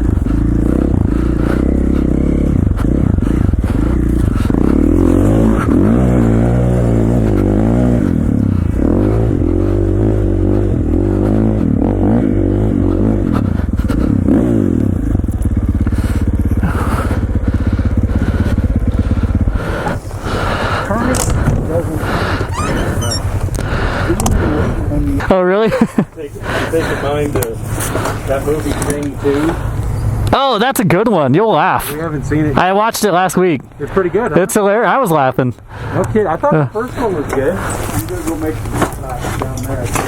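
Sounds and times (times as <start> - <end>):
dirt bike engine revving: 0.0 - 25.2.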